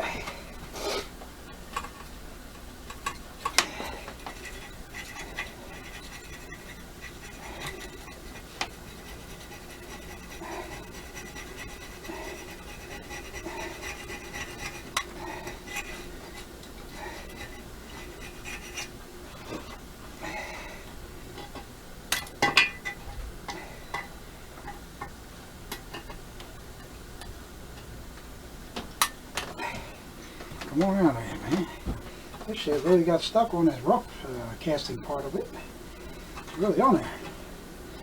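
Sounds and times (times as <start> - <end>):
tool scraping gasket off metal: 2.9 - 18.9.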